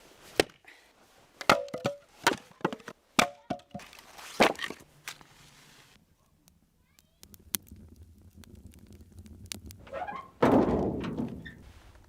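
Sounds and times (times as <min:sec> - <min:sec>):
axe chopping wood: 0:00.4 - 0:00.6, 0:01.4 - 0:04.8.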